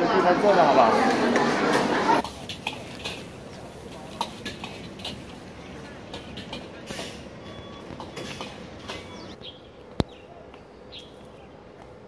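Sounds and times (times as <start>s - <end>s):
outdoor background hush: 0.0s - 12.0s
bird chirping: 7.4s - 11.6s.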